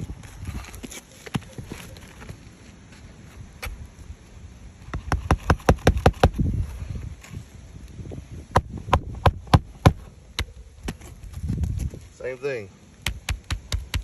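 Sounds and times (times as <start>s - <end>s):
hammer striking nails into shingles: 4.9s - 6.4s, 13.0s - 14.0s.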